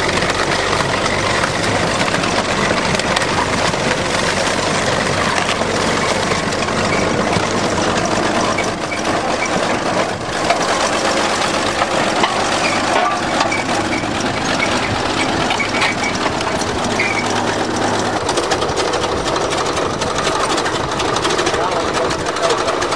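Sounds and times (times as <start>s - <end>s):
bulldozer diesel engine running: 0.0s - 22.9s.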